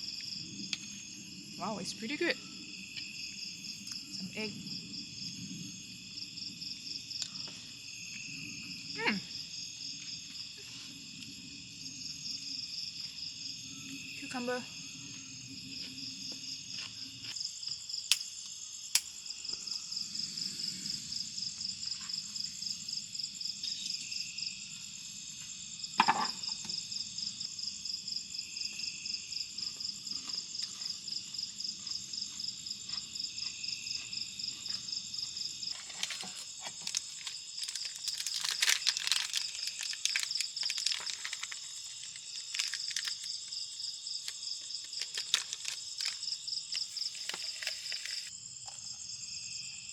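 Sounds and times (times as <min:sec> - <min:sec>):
insects chirping drone: 0:00.0 - 0:49.9
crackling clicks: 0:35.9 - 0:43.3, 0:44.2 - 0:48.3.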